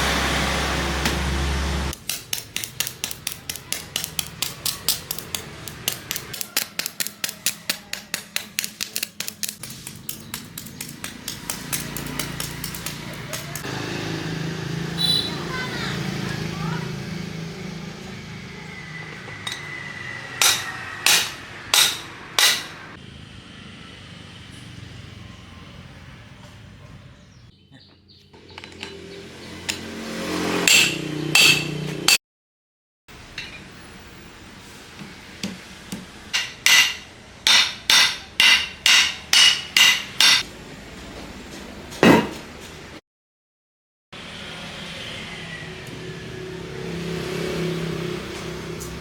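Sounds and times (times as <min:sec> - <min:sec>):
hammer striking metal: 0:02.0 - 0:13.7, 0:19.3 - 0:22.9, 0:30.5 - 0:32.2, 0:35.4 - 0:40.5.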